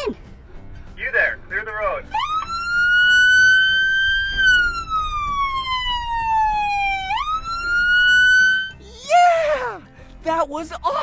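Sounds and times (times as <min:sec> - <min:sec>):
police siren wailing: 0:02.1 - 0:08.8.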